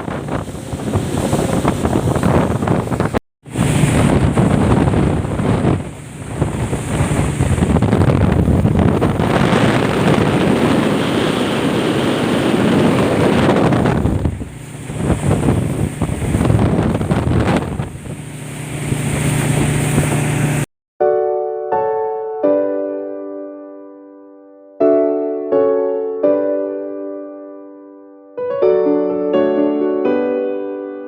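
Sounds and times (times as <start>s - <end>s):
rushing water: 0.0s - 20.7s
speedboat engine hum: 0.0s - 20.7s
wind buffeting microphone: 0.0s - 20.7s.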